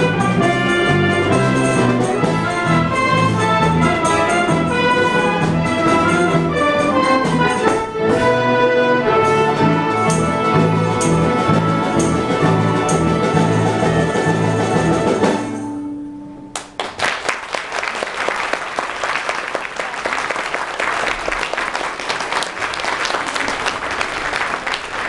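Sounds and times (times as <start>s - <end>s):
audience applause: 16.6s - 25.0s.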